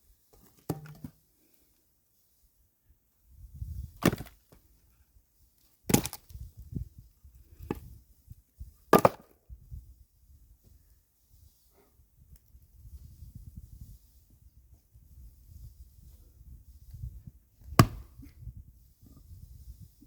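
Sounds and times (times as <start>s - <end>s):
axe chopping firewood: 0.7s - 1.1s, 4.0s - 4.4s, 5.9s - 6.2s, 8.9s - 9.3s, 17.7s - 18.2s.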